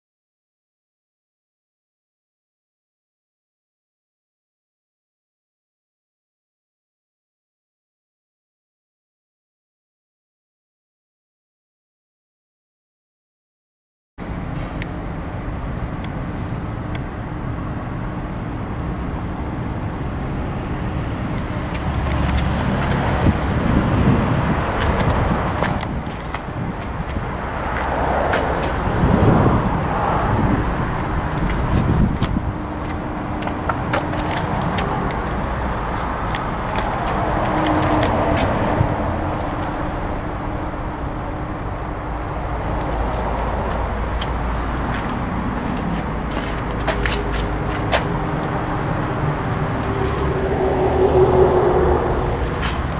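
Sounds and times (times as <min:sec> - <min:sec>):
generator engine humming: 0:14.2 - 0:52.9.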